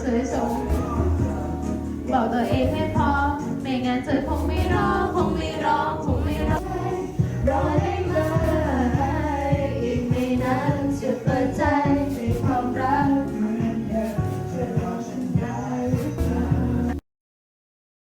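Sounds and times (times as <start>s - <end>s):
person singing karaoke: 0.0s - 17.0s
backing track with bass and drums: 0.4s - 17.0s.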